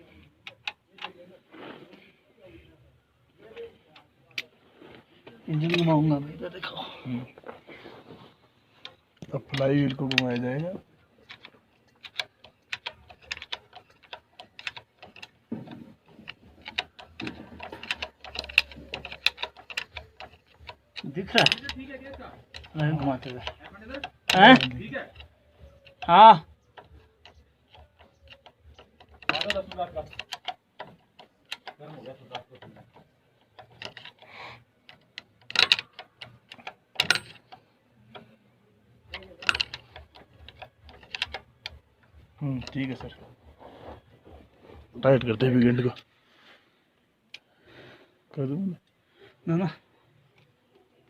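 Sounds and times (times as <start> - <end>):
metallic clicks and taps: 0.2 - 1.2, 8.8 - 38.4, 39.1 - 44.4
hand tools clinking on metal: 8.8 - 38.3, 39.1 - 46.0
sharp metallic clanks: 35.2 - 37.6.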